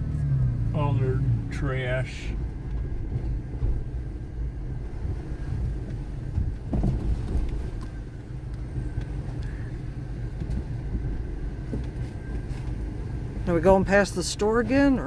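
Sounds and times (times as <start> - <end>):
vehicle engine and tyres rumbling: 0.0 - 15.0
vehicle bump knock: 2.3 - 4.2, 5.2 - 8.1.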